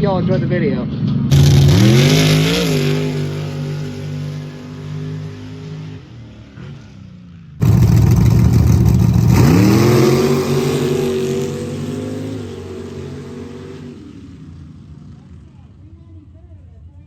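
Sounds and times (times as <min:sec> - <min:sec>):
truck engine revving hard: 0:01.3 - 0:06.0, 0:07.6 - 0:14.2
truck engine running steadily: 0:01.3 - 0:06.8, 0:07.6 - 0:15.7.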